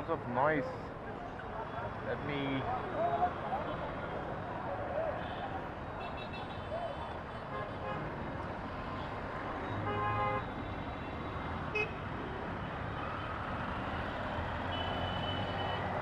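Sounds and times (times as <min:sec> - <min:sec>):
dense road traffic: 0:00.0 - 0:16.0
vehicle horn: 0:09.8 - 0:10.5.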